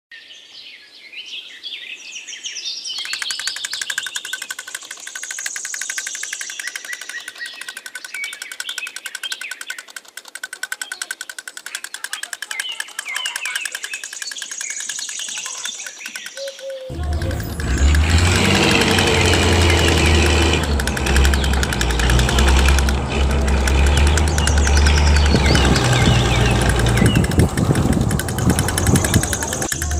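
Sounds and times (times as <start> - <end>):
birds chirping: 2.7 - 29.9
rapid buzzing pulse: 3.0 - 29.9.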